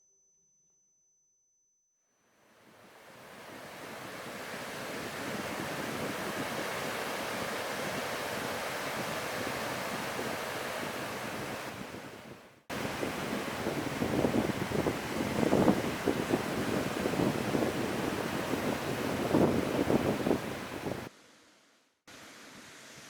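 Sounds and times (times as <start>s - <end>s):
sea surf: 2.7s - 21.1s
wind rushing: 3.3s - 21.1s.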